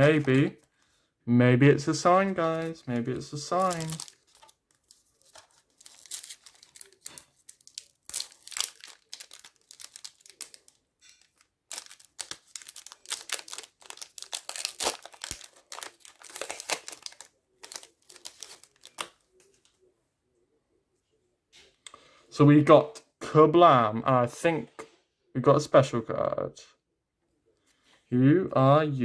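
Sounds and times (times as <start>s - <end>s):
card pack wrapper tearing: 0.0s - 0.7s, 2.1s - 19.2s.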